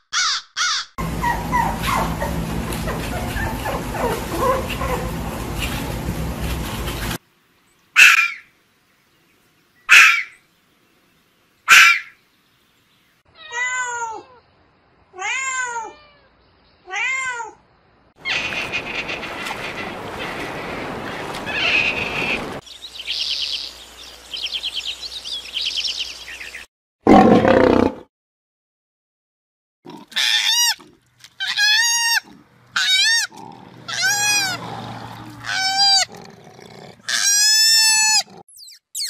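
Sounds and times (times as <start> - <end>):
fox rising and falling calls: 8.0 - 8.5, 9.9 - 10.4, 11.7 - 12.2, 18.2 - 22.6, 30.1 - 36.2
fox screaming: 8.0 - 8.5, 9.9 - 10.4, 11.7 - 12.1, 29.9 - 36.2, 36.9 - 38.4
lion roaring: 27.1 - 28.1, 33.3 - 37.3
cat trilling calls: 31.4 - 34.6.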